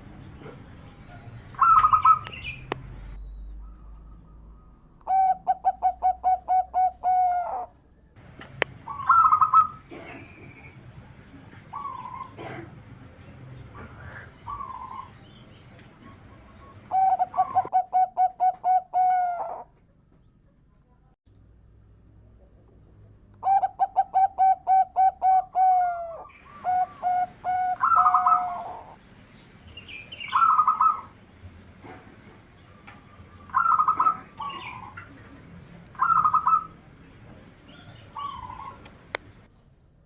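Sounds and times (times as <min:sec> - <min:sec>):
dove cooing: 0:01.2 - 0:02.4, 0:03.6 - 0:07.8, 0:08.8 - 0:10.7, 0:11.6 - 0:12.9, 0:13.8 - 0:15.2, 0:16.0 - 0:19.7, 0:23.4 - 0:29.0, 0:30.3 - 0:31.2, 0:32.7 - 0:36.9, 0:37.7 - 0:39.1.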